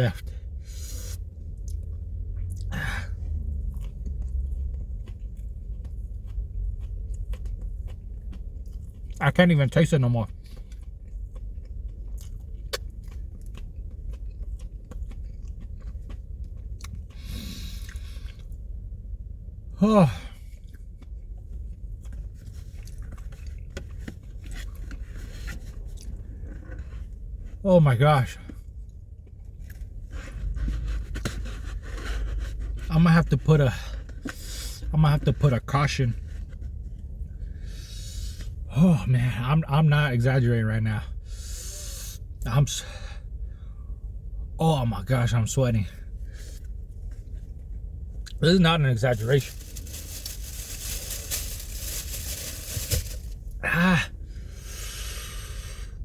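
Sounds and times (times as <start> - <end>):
person chewing food: 1.4 - 9.2, 10.3 - 18.7, 20.4 - 26.8
loud breath: 54.4 - 56.0.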